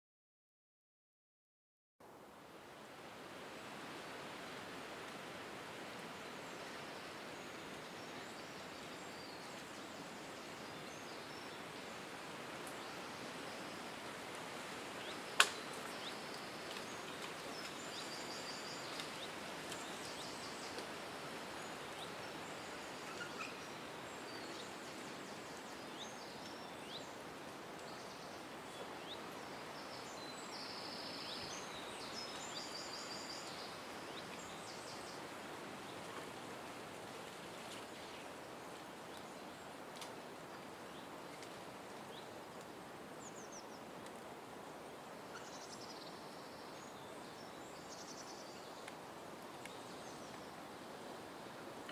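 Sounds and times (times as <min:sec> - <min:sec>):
outdoor hiss: 0:02.0 - 0:51.9
birds chirping and trilling: 0:21.6 - 0:27.2.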